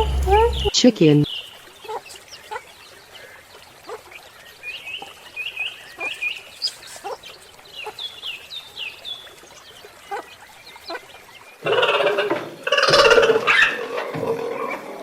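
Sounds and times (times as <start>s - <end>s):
chickens peeping: 6.0s - 8.3s.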